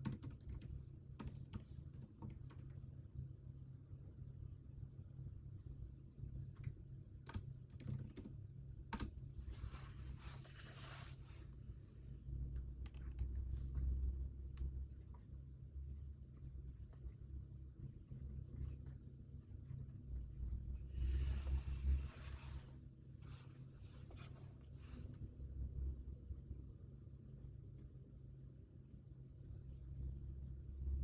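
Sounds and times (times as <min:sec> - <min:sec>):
typing on computer keyboard: 0:00.0 - 0:02.8, 0:06.5 - 0:09.2, 0:12.8 - 0:13.7.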